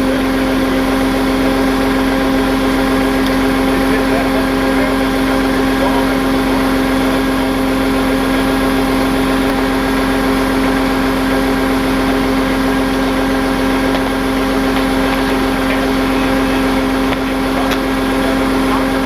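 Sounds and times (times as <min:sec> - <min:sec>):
truck engine humming: 0:00.0 - 0:19.0.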